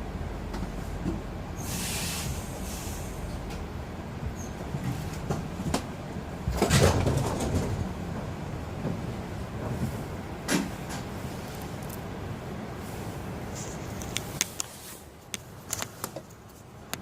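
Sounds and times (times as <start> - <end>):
clattering rush of train: 0.0 - 17.0
train interior rumble: 0.0 - 17.0
hiss: 1.6 - 3.4.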